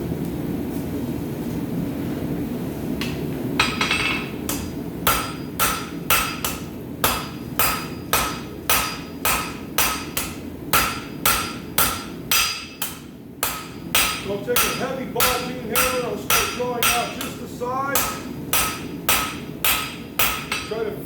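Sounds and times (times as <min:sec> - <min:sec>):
hammer ringing on anvil: 0:03.6 - 0:17.4, 0:18.0 - 0:20.8.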